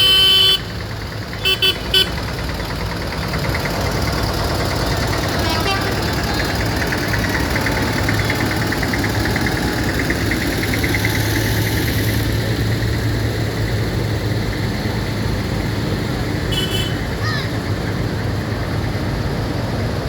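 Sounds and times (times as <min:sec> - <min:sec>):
tractor engine idling: 0:00.0 - 0:20.0
fast rhythmic ticking: 0:00.8 - 0:16.4.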